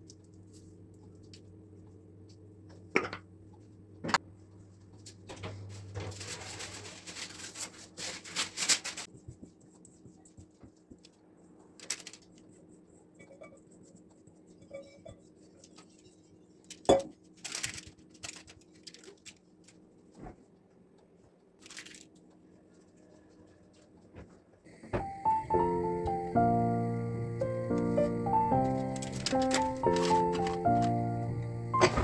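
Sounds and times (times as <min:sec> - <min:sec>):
faint steady hum: 0:00.0 - 0:06.8, 0:09.1 - 0:32.0
paper rustling and tearing: 0:05.4 - 0:09.2, 0:11.7 - 0:12.4, 0:17.4 - 0:19.8, 0:21.6 - 0:22.2, 0:28.6 - 0:31.0.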